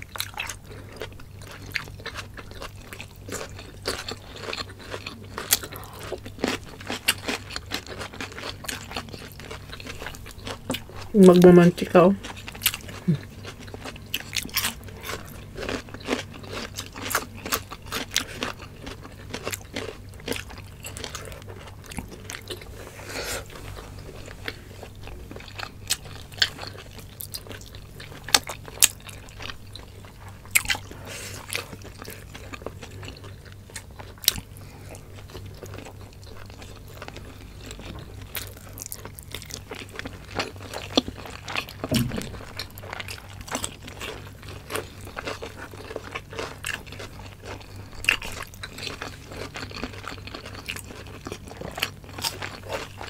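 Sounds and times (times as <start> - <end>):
people chewing and crunching food: 0.0 - 53.0
steady low hum: 40.7 - 45.2.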